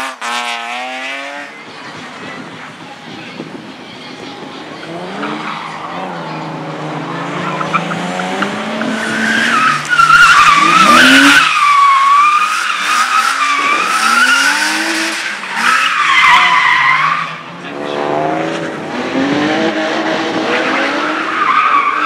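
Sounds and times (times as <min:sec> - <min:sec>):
car engine revving: 0:04.8 - 0:22.0
tyres squealing: 0:07.4 - 0:17.4.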